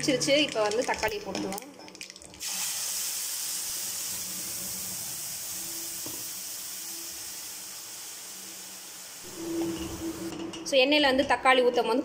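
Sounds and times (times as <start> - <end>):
paste sizzling in hot oil: 2.4 - 10.1.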